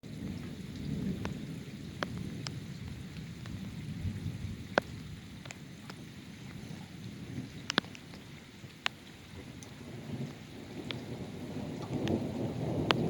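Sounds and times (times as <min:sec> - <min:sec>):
rolling thunder: 0:00.0 - 0:08.5, 0:09.2 - 0:13.0
rain: 0:00.0 - 0:13.0
heavy drops ticking on hard surface: 0:07.6 - 0:11.1, 0:11.8 - 0:13.0.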